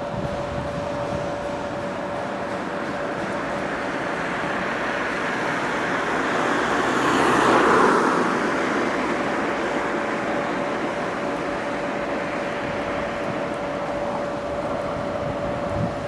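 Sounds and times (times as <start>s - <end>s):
road traffic noise: 0.0s - 16.0s
vehicle passing: 3.4s - 13.9s.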